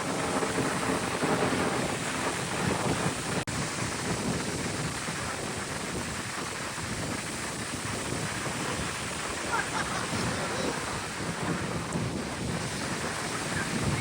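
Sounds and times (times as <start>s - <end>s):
beach surf: 0.0s - 14.0s
wind buffeting microphone: 0.0s - 14.0s.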